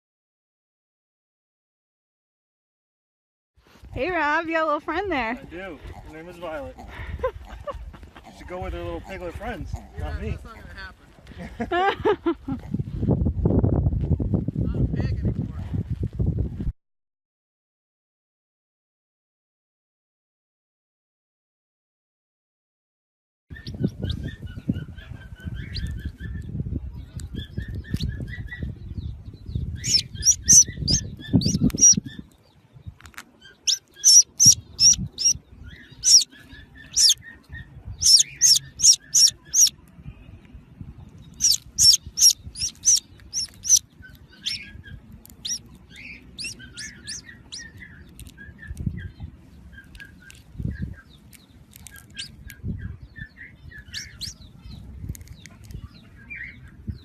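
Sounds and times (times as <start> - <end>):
small birds chirping: 3.8 - 11.5, 23.5 - 57.0.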